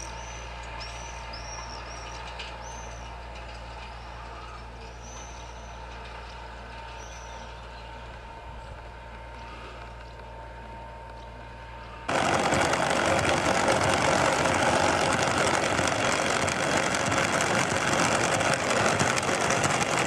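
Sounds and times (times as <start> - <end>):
low engine hum: 0.0 - 20.0
heavy machinery running: 12.1 - 20.0.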